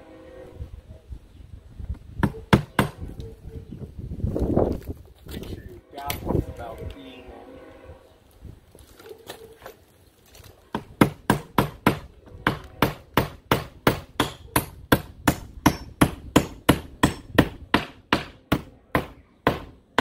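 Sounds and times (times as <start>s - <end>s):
hammer driving nails into wood: 10.7s - 20.0s.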